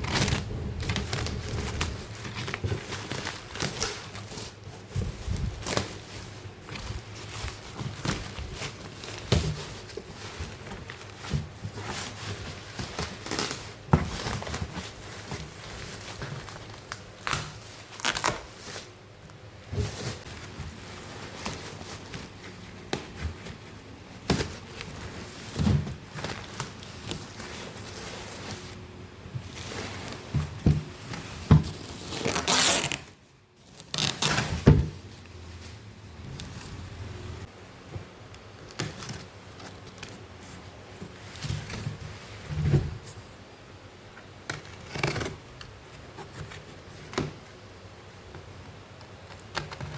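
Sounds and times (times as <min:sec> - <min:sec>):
plastic packaging crinkling: 0:31.0 - 0:36.9.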